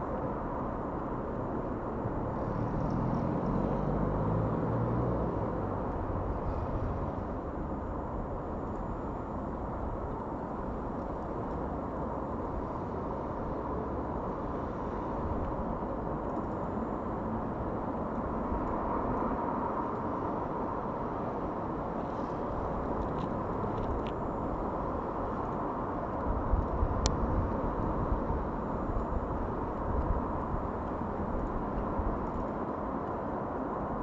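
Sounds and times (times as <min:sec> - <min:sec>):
outdoor background rumble: 0:00.0 - 0:34.0
wind buffeting the microphone: 0:22.3 - 0:32.6.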